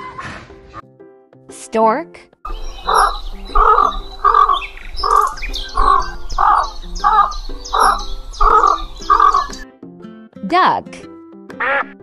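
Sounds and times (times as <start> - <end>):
bird cawing: 2.5 - 9.6, 11.6 - 12.0
small birds chirping: 2.5 - 9.6.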